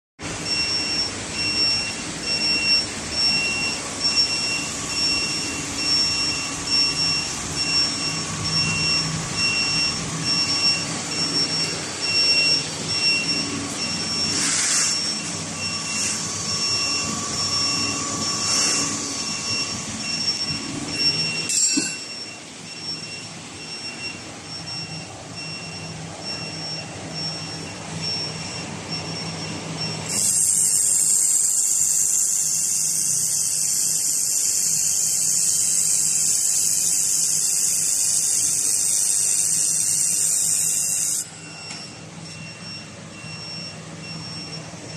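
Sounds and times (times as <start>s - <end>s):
whooshing machine noise: 0.2s - 42.2s
high repeating beep: 0.4s - 31.1s.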